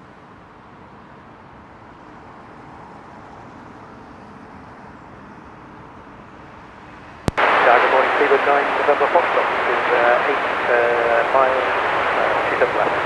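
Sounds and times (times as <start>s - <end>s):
jet engines rushing: 7.4s - 13.0s.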